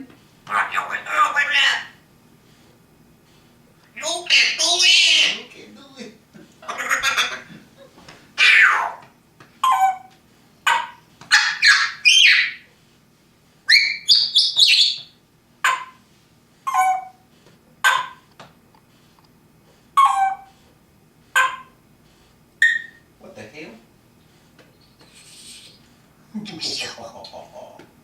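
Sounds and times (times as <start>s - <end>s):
parrot squawks and whistles: 8.4s - 9.0s, 10.7s - 12.6s, 13.7s - 16.0s, 20.0s - 20.5s, 22.6s - 23.0s.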